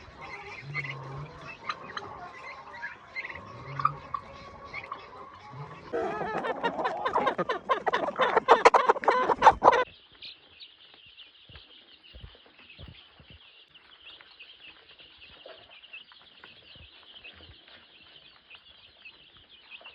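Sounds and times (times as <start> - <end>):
chickens clucking and squawking: 0.0 - 9.9.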